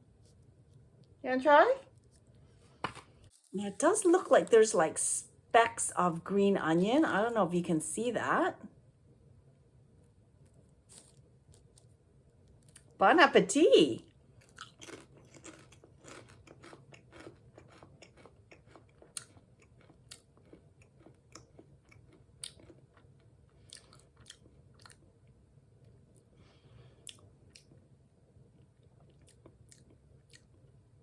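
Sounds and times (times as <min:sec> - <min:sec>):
person chewing potato chips: 0:10.9 - 0:11.9, 0:12.5 - 0:13.0, 0:14.4 - 0:25.4, 0:27.0 - 0:27.8, 0:28.6 - 0:30.7.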